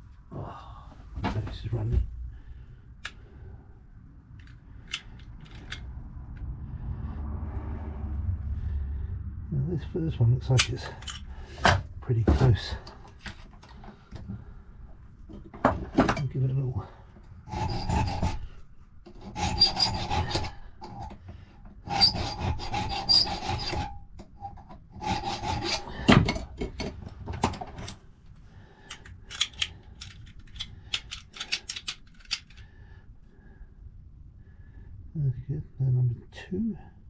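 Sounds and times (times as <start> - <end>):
hand file rasping on metal: 17.5 - 21.2, 21.8 - 26.4.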